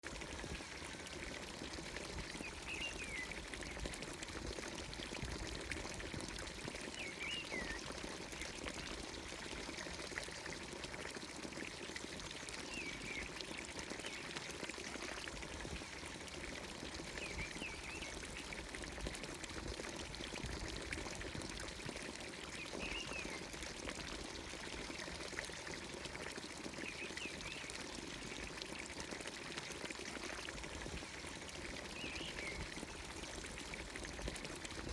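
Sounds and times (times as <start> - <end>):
water pouring into trough: 0.0 - 34.9.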